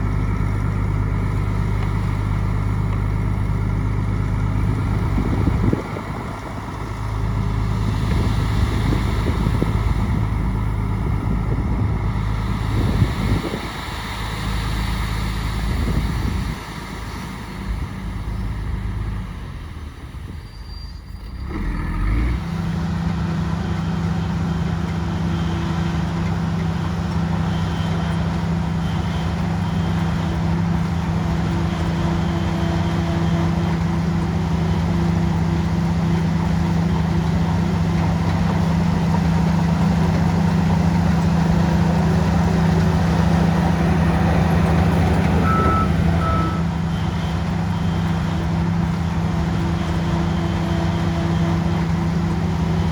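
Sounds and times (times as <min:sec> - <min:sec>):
diesel engine drone: 0:00.0 - 0:52.9
short beeps: 0:45.4 - 0:46.7.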